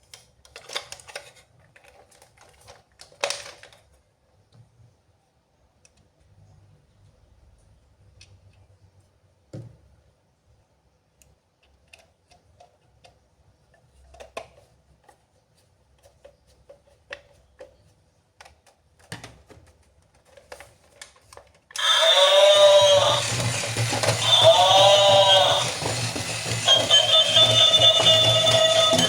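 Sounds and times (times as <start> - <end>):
electronic toy swooping sound: 21.8 - 29.0.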